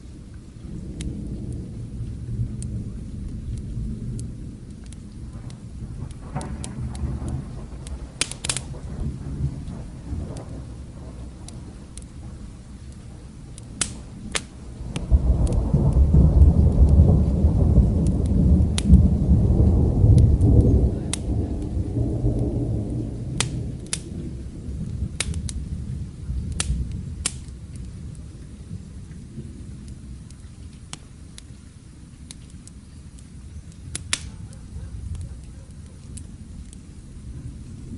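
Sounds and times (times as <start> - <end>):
steady rain: 0.0 - 37.9
thunder rumble: 0.0 - 37.9
wood fire crackling: 0.0 - 37.9.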